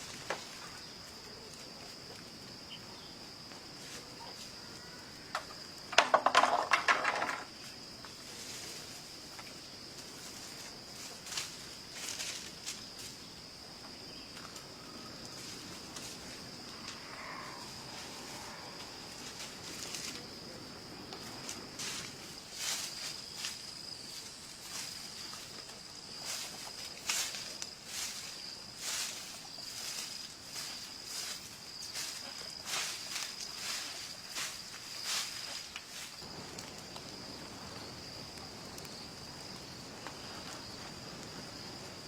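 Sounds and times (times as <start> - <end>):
insects chirring: 0.0 - 42.0
scattered knocks: 5.9 - 7.4.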